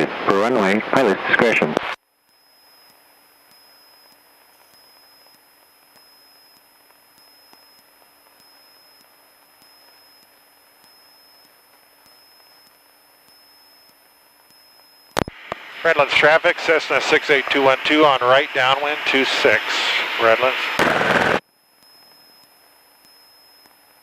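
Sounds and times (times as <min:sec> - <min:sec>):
radio hiss: 0:00.0 - 0:02.0, 0:15.2 - 0:21.4
faint regular ticks: 0:02.2 - 0:15.3, 0:21.7 - 0:24.0
high electronic whine: 0:14.5 - 0:23.7.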